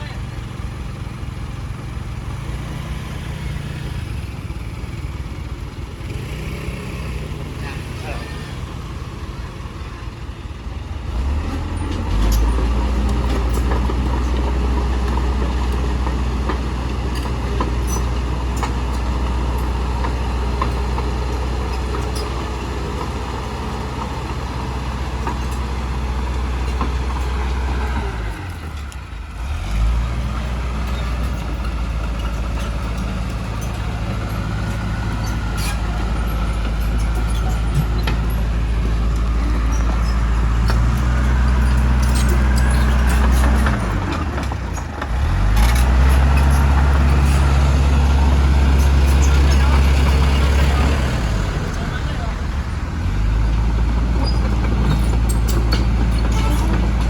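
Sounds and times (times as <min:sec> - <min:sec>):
diesel engine droning: 0:00.0 - 0:57.0.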